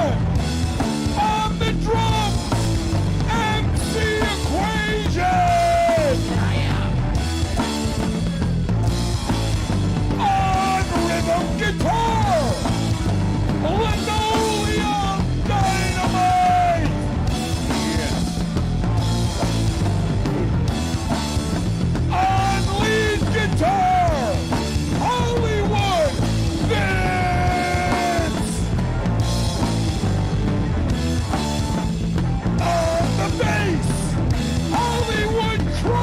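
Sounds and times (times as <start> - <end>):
punk rock band playing: 0.0 - 36.0
person yelling vocals: 1.2 - 2.4, 3.3 - 7.0, 10.2 - 12.6, 13.6 - 17.0, 22.1 - 24.4, 25.0 - 28.7, 32.6 - 34.1.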